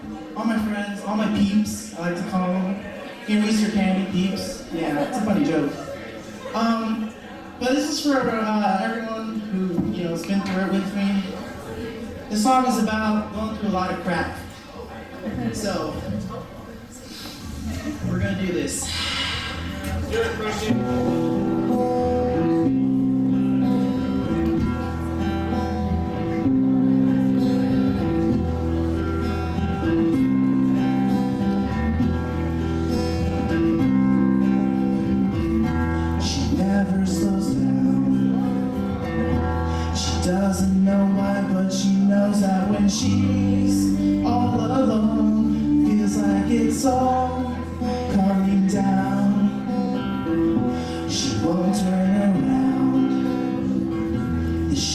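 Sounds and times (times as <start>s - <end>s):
acoustic guitar: 0.0s - 54.9s
bass guitar low notes: 17.7s - 54.9s
person singing: 31.7s - 54.9s.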